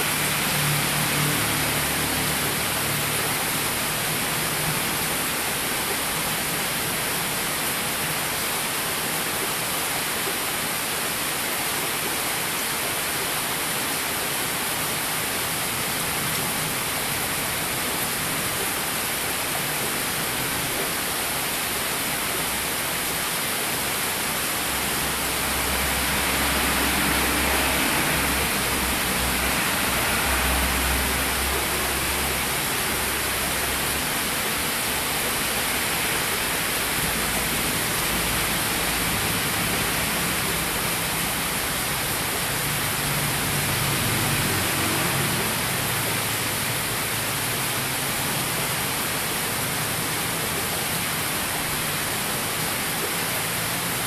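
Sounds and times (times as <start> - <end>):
heavy rain pouring: 0.0 - 54.0
car passing: 24.6 - 48.1.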